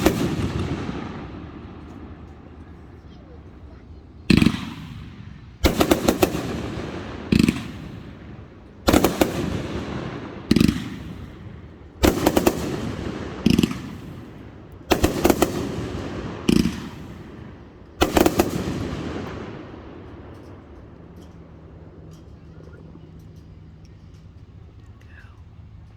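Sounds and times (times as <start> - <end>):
fireworks bangs: 0.0 - 2.9, 4.2 - 21.3.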